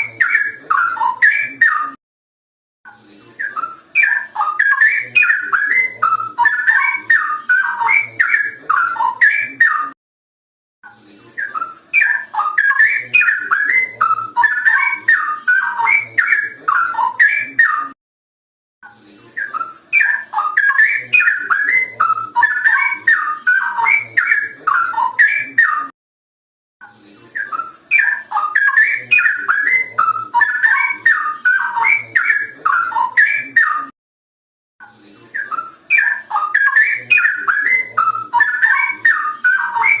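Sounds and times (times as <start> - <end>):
bulbul singing whistled notes: 35.4 - 40.0.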